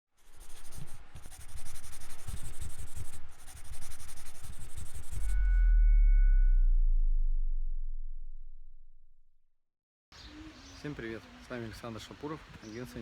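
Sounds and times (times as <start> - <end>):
scratchy rustling noise: 0.1 - 5.4
low thumps: 3.7 - 9.3
deep bass boom: 5.0 - 9.4.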